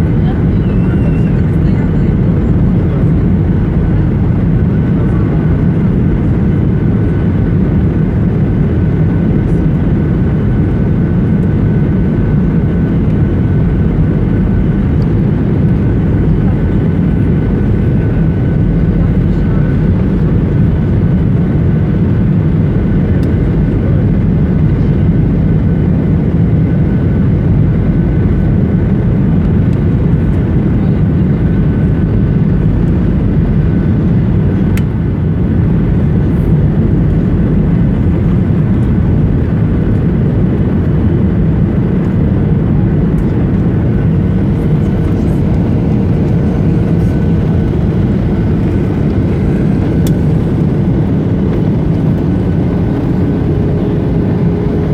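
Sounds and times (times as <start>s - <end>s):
airplane cabin engine roar: 0.0s - 54.9s
faint steady whine: 41.7s - 54.9s.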